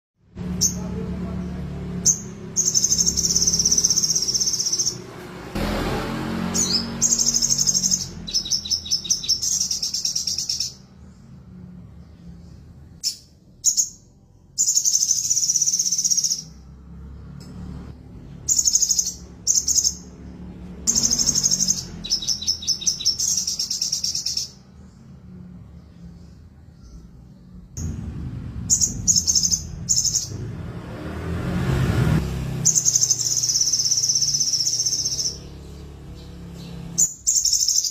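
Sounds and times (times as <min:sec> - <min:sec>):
bird trilling: 0:02.0 - 0:05.1, 0:06.5 - 0:10.9, 0:13.0 - 0:16.6, 0:18.4 - 0:20.2, 0:20.9 - 0:24.6, 0:28.6 - 0:30.5, 0:32.6 - 0:37.9.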